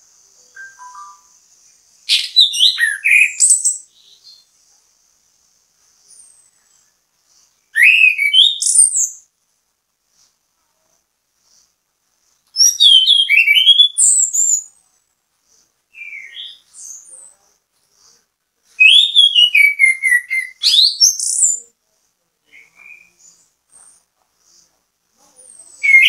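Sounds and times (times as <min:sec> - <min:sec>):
thrush singing whistled notes: 0:00.4 - 0:01.5, 0:02.1 - 0:04.4, 0:07.7 - 0:09.3, 0:12.6 - 0:14.7, 0:18.8 - 0:21.6, 0:25.6 - 0:26.0.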